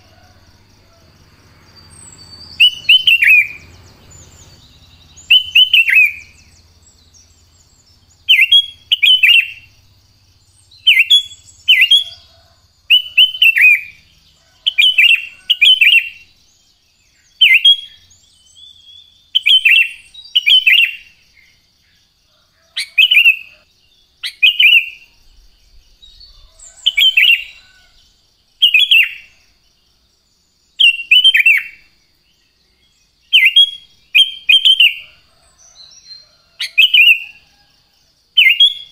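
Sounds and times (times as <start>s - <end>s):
bird singing whistled notes: 1.6s - 21.6s, 22.6s - 29.4s, 30.6s - 37.7s, 38.4s - 38.9s.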